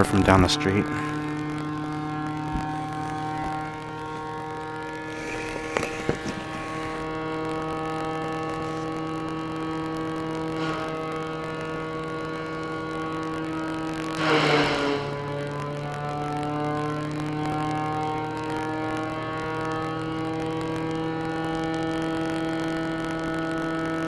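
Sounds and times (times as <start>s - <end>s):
wood chipper engine humming: 0.0s - 21.3s
short noisy bursts: 0.9s - 15.9s.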